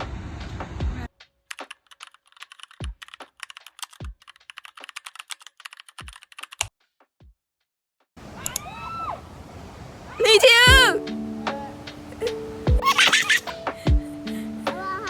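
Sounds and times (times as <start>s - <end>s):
keyboard key clicks: 1.5s - 6.7s.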